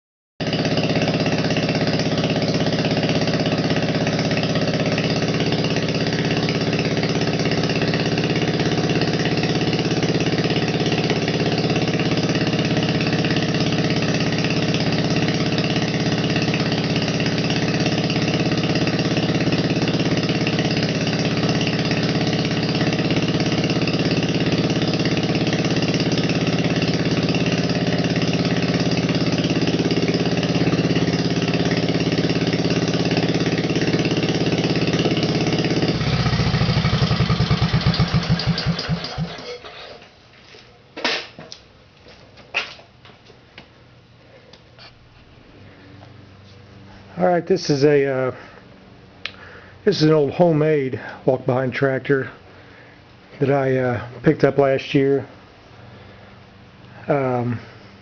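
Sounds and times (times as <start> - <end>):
single-cylinder engine idling: 0.4 - 39.8.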